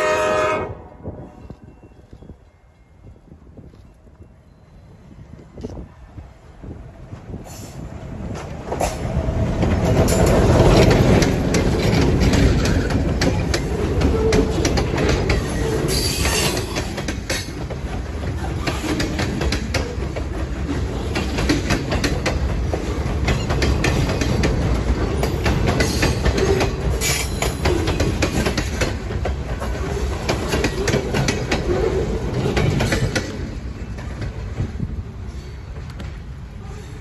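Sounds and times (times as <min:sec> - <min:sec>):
wheels clicking over rail joints: 0:08.3 - 0:36.4.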